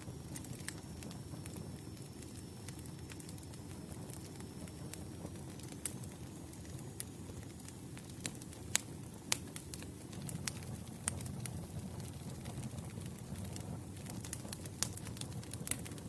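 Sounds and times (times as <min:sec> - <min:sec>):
logs crackling and popping: 0:00.0 - 0:16.0
low rush of flame: 0:00.0 - 0:16.0.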